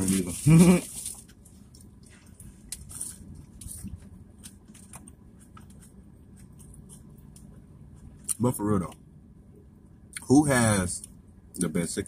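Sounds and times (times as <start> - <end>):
man chewing fries: 0.0 - 8.4
low steady rumble: 0.0 - 12.0.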